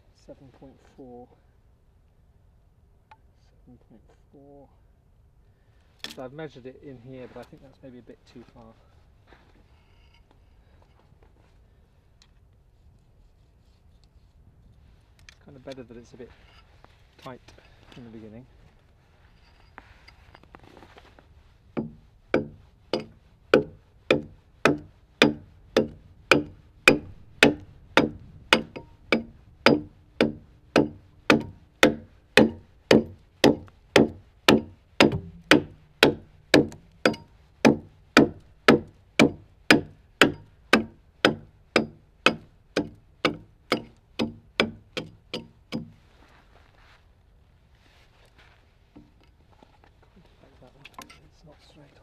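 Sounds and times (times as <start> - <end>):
blows on a timber log: 21.3 - 46.1.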